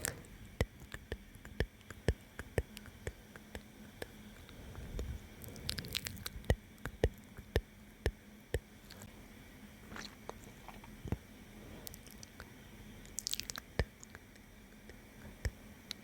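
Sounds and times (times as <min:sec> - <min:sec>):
wet mouth clicks and smacks: 0:13.1 - 0:14.2.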